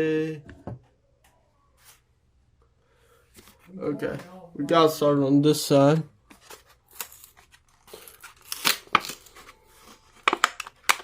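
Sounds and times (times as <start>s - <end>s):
plastic and cardboard crinkling: 6.3s - 11.0s.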